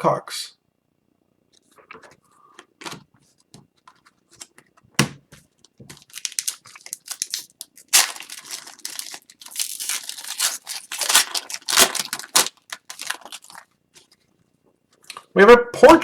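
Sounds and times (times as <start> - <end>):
foil wrapper tearing and crinkling: 5.9 - 14.1.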